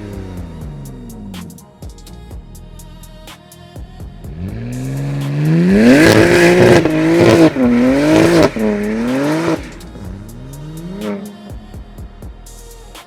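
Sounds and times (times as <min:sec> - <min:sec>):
car engine accelerating hard: 0:04.3 - 0:11.4.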